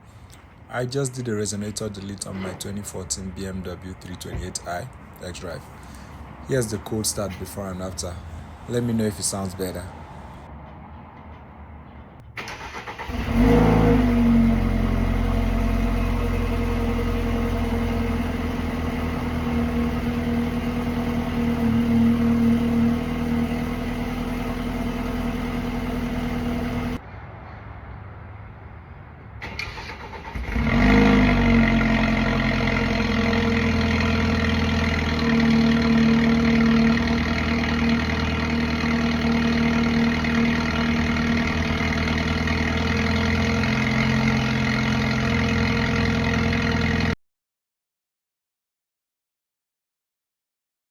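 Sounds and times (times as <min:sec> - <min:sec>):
car engine cranking: 0:12.3 - 0:27.0, 0:29.4 - 0:47.2
car engine fast idle: 0:12.4 - 0:27.0, 0:29.4 - 0:47.1
car engine rev flare: 0:12.4 - 0:27.0, 0:29.4 - 0:47.1.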